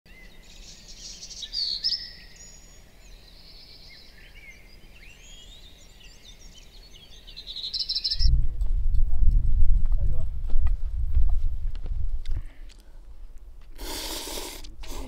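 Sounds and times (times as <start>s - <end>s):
small birds chirping: 0.1s - 8.3s
short whistled bird calls: 0.2s - 2.8s, 7.4s - 8.3s.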